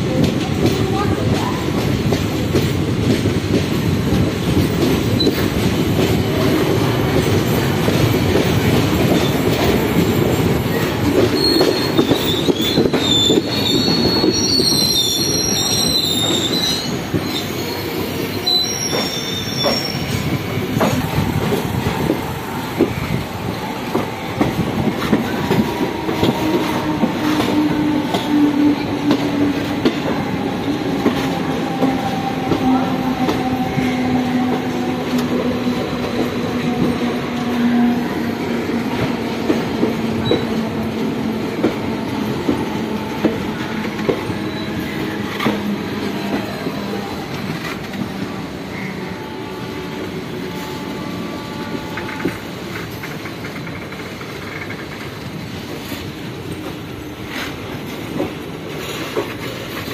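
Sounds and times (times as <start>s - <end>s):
train wheels rumbling and clattering: 0.0s - 59.9s
high-pitched wheel squeal: 10.7s - 20.2s.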